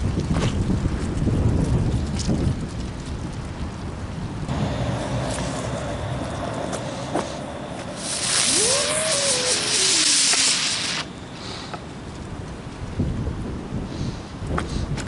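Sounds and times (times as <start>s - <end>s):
fireworks crackling and hissing: 0.0s - 15.0s
fireworks bangs: 4.5s - 11.6s
firework whistle: 4.5s - 11.8s.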